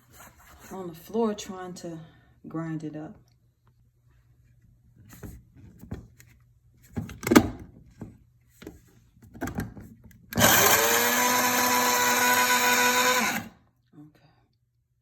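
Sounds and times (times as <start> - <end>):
coffee grinder motor whine: 10.4 - 13.6.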